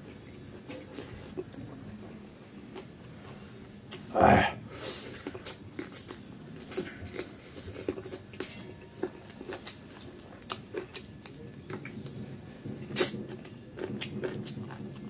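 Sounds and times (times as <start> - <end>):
chewing and lip-smacking: 5.1 - 15.0.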